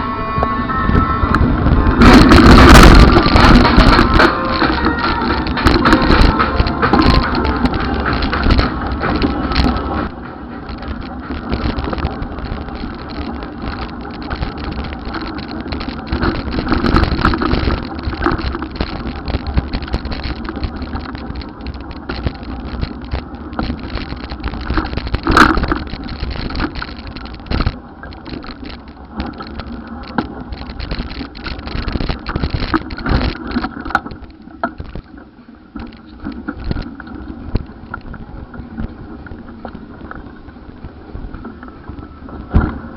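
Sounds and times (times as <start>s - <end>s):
brief high tone: 0.0s - 2.0s
road traffic noise: 0.0s - 34.9s
wind buffeting microphone: 0.0s - 42.9s.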